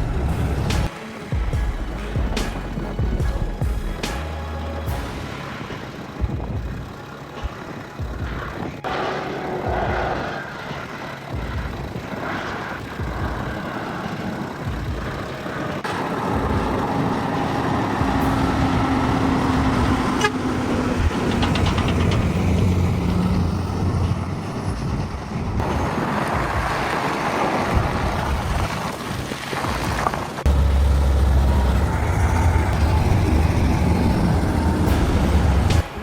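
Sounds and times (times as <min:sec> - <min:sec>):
heavy vehicle engines running: 0:00.0 - 0:36.0
vehicle horn: 0:16.2 - 0:21.8.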